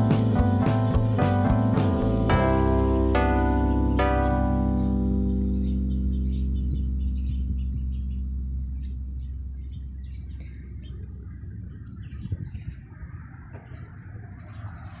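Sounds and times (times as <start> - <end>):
background music: 0.0 - 7.7
small birds chirping: 2.3 - 15.0.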